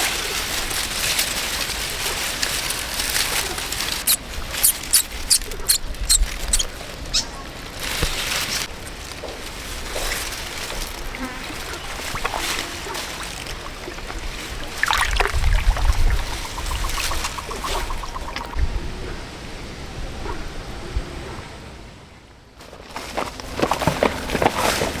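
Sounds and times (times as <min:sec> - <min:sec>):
water splashing and trickling: 0:00.0 - 0:18.6.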